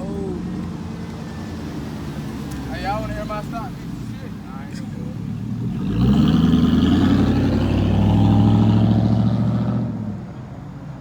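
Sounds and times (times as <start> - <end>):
vehicle engine revving: 5.1 - 10.2.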